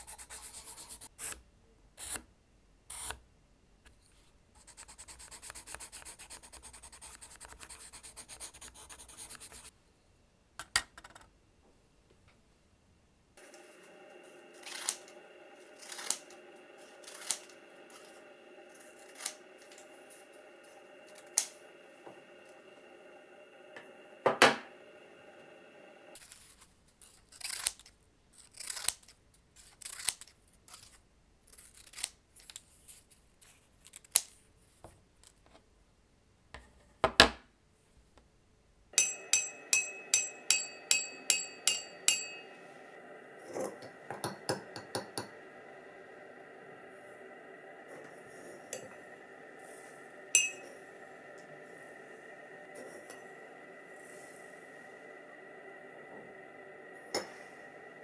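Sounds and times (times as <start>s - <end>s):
camera internal whirring hum: 2.9s - 9.7s, 12.0s - 26.6s, 42.5s - 58.0s.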